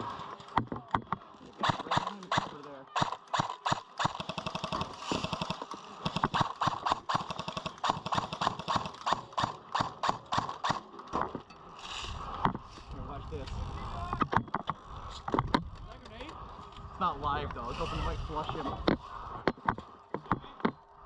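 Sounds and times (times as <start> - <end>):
airsoft gunshots: 1.6 - 10.9
full-auto airsoft burst: 1.6 - 10.9.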